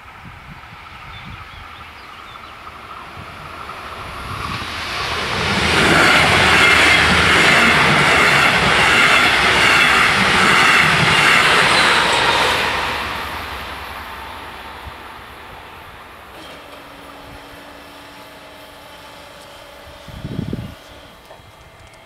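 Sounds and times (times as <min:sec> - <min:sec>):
train wheels clattering on rails: 0:03.5 - 0:13.6, 0:16.2 - 0:17.8.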